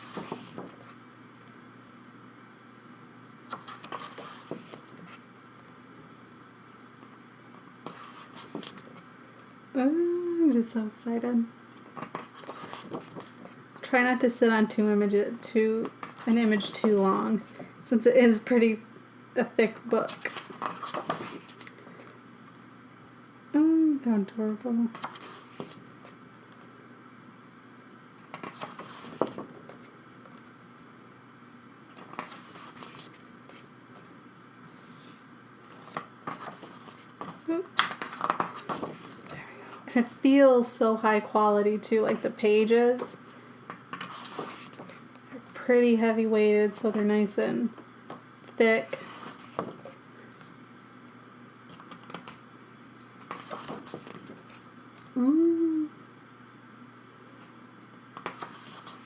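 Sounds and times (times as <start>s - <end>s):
thick book pages turning: 0.0s - 1.6s, 20.1s - 22.7s, 25.0s - 26.8s, 31.9s - 39.4s, 43.9s - 45.1s, 53.2s - 55.1s, 58.2s - 59.0s
person saying ooh: 55.2s - 56.0s.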